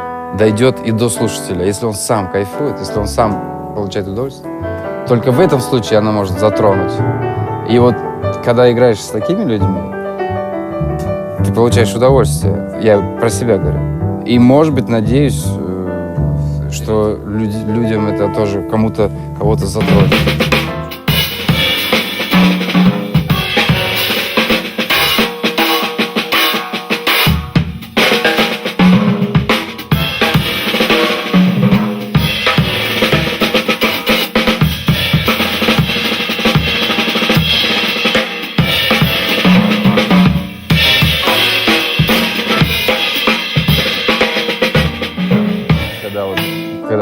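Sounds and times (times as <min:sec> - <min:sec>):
piano: 0:00.0 - 0:47.0
double bass: 0:03.0 - 0:21.8
drum and cymbal strokes: 0:19.8 - 0:46.8.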